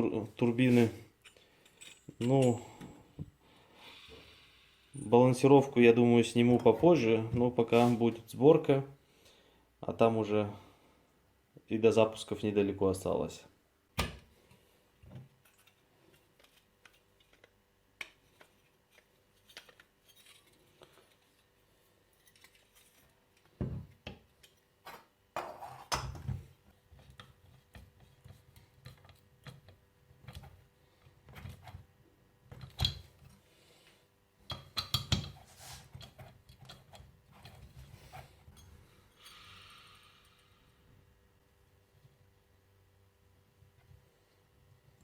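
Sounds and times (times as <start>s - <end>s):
metal parts clinking: 1.2s - 2.7s, 19.4s - 21.4s, 22.1s - 23.2s.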